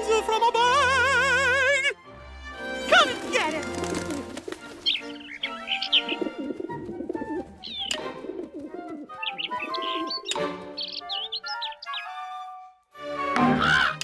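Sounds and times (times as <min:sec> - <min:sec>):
light background music: 0:00.0 - 0:14.0
pigeons cooing: 0:03.7 - 0:11.8
small bird chirping: 0:04.8 - 0:06.4, 0:07.6 - 0:08.0, 0:09.2 - 0:12.2.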